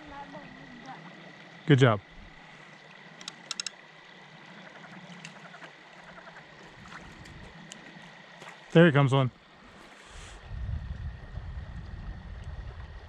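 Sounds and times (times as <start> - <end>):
shallow water splashing: 0.0 - 8.8
quick sharp clicks: 3.2 - 3.8.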